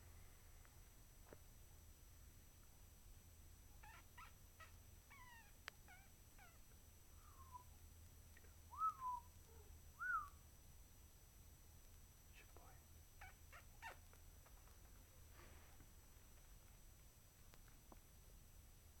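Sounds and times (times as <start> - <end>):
cats mewing and chirping: 3.8 - 6.7, 13.2 - 14.2.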